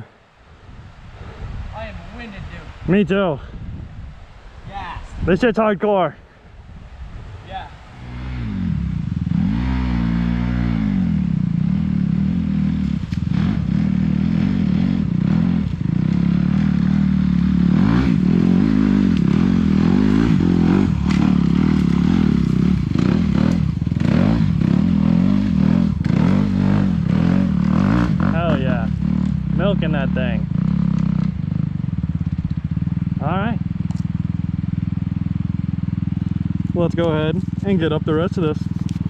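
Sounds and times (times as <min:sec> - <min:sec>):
dirt bike engine revving: 0:07.9 - 0:39.0.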